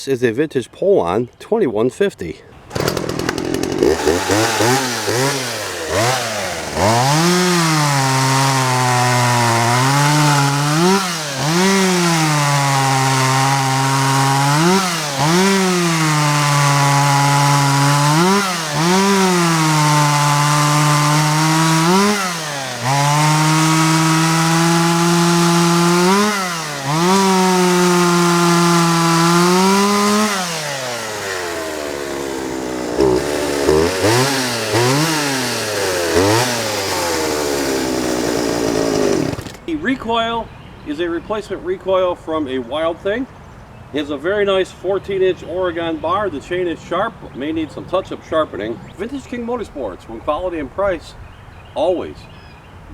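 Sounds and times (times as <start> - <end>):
chainsaw revving cutting wood: 2.6 - 39.7.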